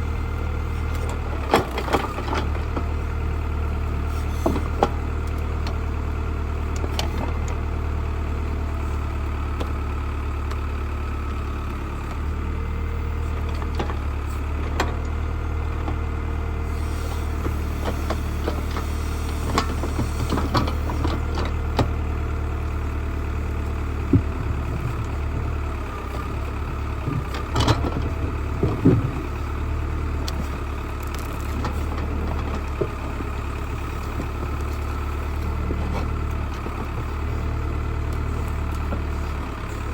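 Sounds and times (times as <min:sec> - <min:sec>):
tractor engine running: 0:00.0 - 0:39.9
sharp knocks and clanks: 0:24.1 - 0:25.6.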